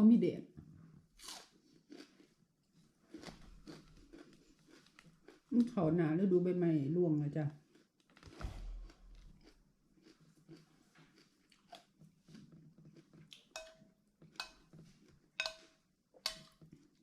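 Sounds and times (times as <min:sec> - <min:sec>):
person chewing crunchy food: 0:01.2 - 0:05.7, 0:07.6 - 0:17.0
cutlery clinking on a dish: 0:13.5 - 0:13.8, 0:14.4 - 0:14.7, 0:15.4 - 0:16.6.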